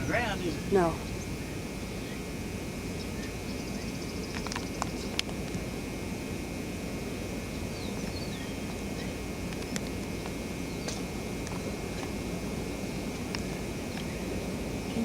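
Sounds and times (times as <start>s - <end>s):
wind rumble: 0.0s - 15.0s
small clicks: 9.5s - 12.2s.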